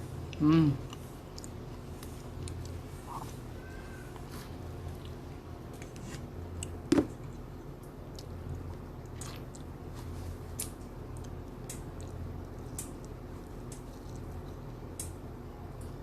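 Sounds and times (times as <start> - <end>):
steady low hum: 0.0 - 16.0
chewing and biting: 8.1 - 15.2.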